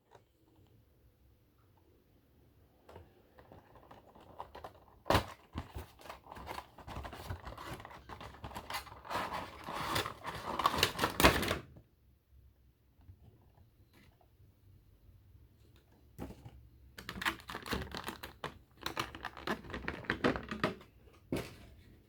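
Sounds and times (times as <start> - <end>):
packaging clicking and tearing: 17.0 - 20.7.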